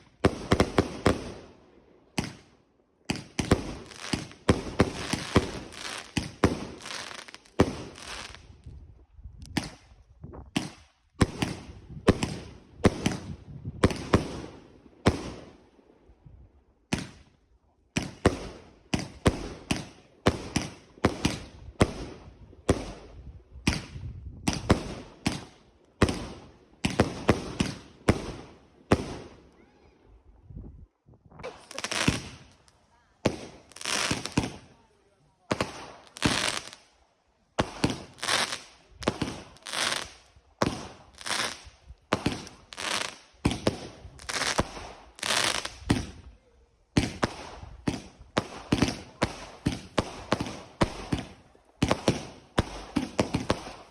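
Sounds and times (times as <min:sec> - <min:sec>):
fireworks bangs: 0:02.2 - 0:08.5, 0:10.5 - 0:15.5, 0:18.0 - 0:29.7, 0:31.4 - 0:34.8, 0:35.5 - 0:36.8, 0:37.6 - 0:46.2, 0:46.9 - 0:53.9.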